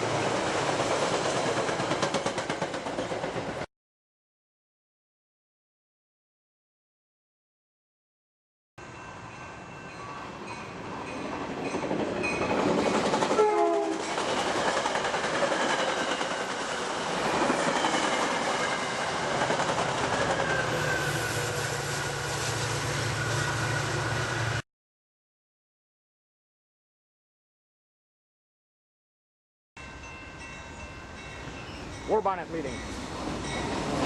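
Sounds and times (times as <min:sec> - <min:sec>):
train passing close by: 0:00.0 - 0:03.7, 0:08.8 - 0:24.6, 0:29.8 - 0:34.0
train horn note: 0:13.3 - 0:14.1.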